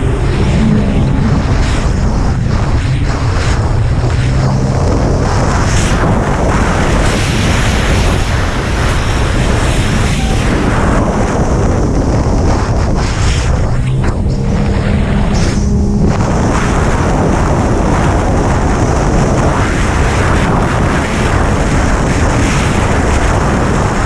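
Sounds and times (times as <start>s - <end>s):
jet ski engine at speed: 0.0s - 24.0s
wind buffeting microphone: 0.0s - 24.0s.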